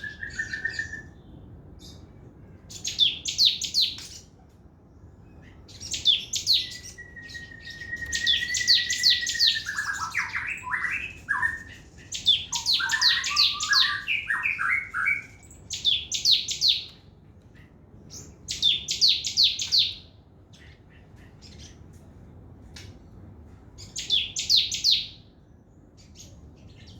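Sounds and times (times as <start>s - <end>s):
bird chattering trills: 5.5s - 16.9s.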